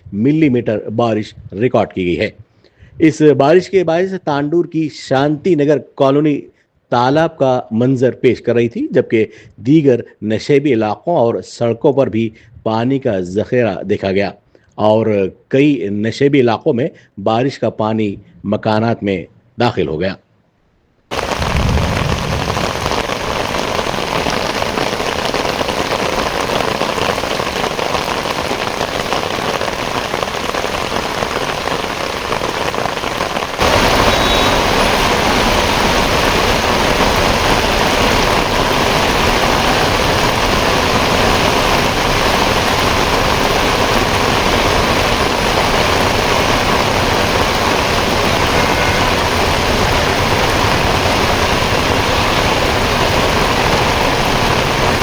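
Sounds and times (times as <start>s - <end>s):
heavy rain pouring: 21.1s - 55.0s.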